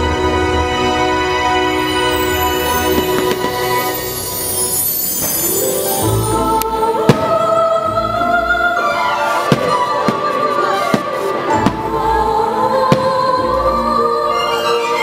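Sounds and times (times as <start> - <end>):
orchestral music: 0.0 - 15.0
fireworks cracking: 2.5 - 5.9, 7.1 - 7.6, 9.3 - 12.2, 12.9 - 13.5
fireworks booming: 2.8 - 4.2, 7.1 - 7.6, 9.4 - 12.1, 12.9 - 13.5.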